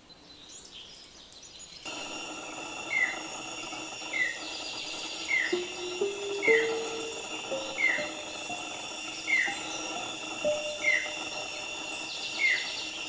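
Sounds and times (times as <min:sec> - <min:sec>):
high-pitched whine: 0:01.9 - 0:13.0
bird chirping: 0:02.7 - 0:13.0.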